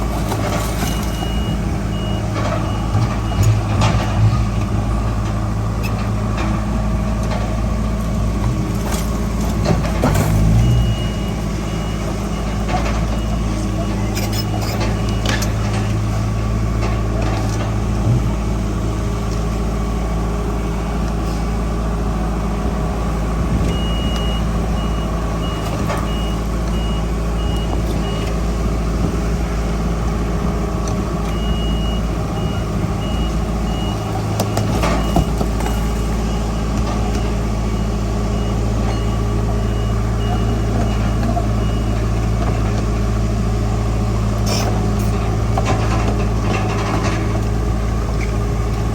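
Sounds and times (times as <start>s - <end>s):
heavy diesel machinery running: 0.0s - 48.9s
reversing alarm beeping: 0.3s - 4.3s, 10.2s - 16.0s, 23.6s - 28.4s, 31.3s - 42.7s.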